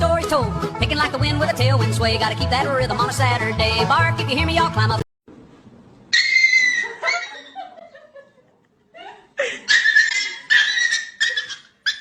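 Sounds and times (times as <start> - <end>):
high-pitched laughter: 6.1 - 12.0.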